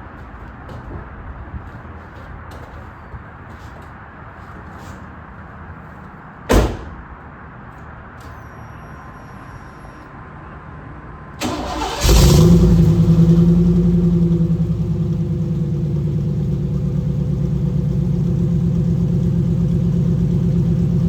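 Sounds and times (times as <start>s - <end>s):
sharp thump: 6.5s - 7.0s
engine cranking and starting: 11.4s - 14.6s
loud steady engine idle: 11.7s - 21.0s.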